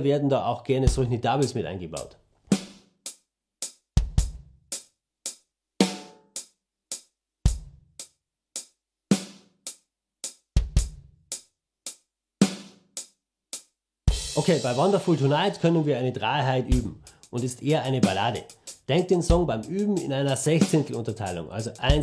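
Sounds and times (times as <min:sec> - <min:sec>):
snare drum backbeats: 0:02.5 - 0:02.9, 0:05.3 - 0:06.2, 0:12.4 - 0:12.8, 0:16.7 - 0:22.0
hi-hat strokes: 0:02.5 - 0:03.8, 0:04.7 - 0:05.5, 0:06.4 - 0:16.0, 0:16.6 - 0:22.0.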